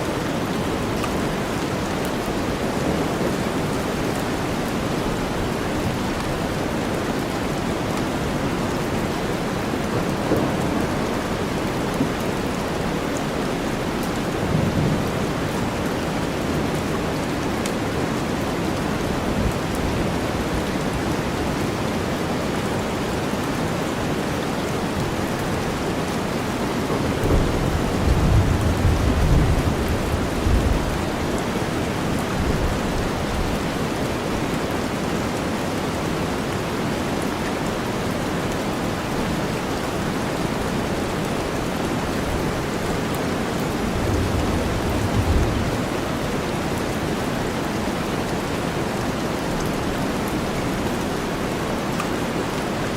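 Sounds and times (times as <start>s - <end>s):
heavy rain: 0.0s - 52.9s
thunder rolling: 26.8s - 31.2s, 43.7s - 46.1s.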